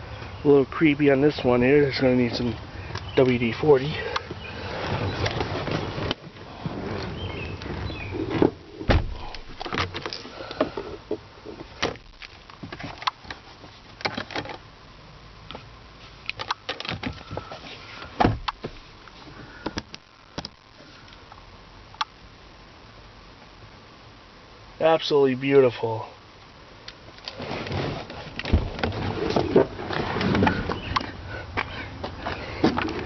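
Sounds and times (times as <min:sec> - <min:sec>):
heavy thumps: 0:07.7 - 0:10.0
clicks and knocks of car interior: 0:16.4 - 0:18.8, 0:28.0 - 0:31.2.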